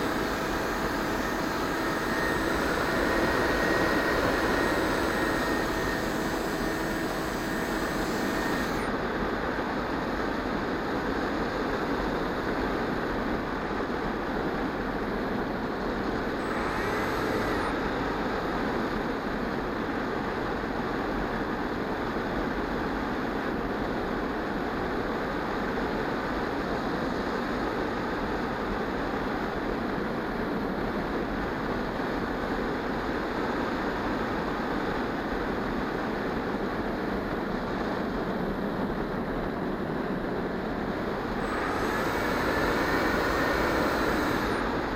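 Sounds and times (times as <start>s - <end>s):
electric motor whining: 0.0s - 9.0s, 16.3s - 18.8s, 41.0s - 44.9s.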